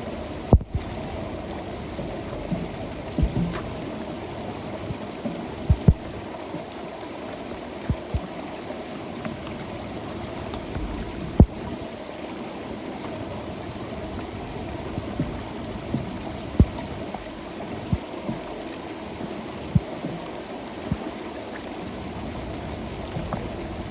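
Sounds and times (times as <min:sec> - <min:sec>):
water running into storm drain: 0:00.0 - 0:23.9
dull thumps: 0:02.5 - 0:03.8, 0:05.7 - 0:06.2, 0:15.0 - 0:17.0.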